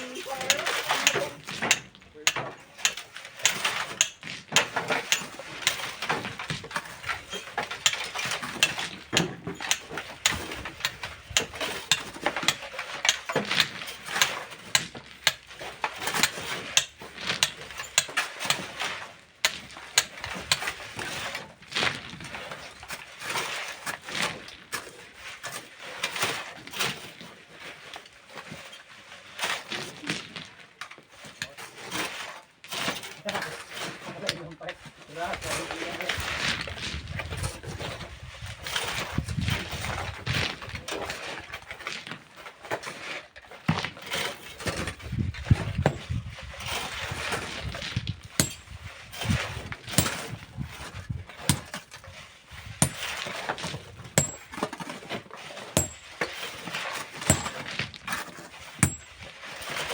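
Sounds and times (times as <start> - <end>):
metal tools knocking on rock: 48.4 - 48.7, 50.0 - 50.3, 52.8 - 53.0, 54.2 - 54.6, 55.8 - 56.1, 57.3 - 57.6, 58.8 - 59.2.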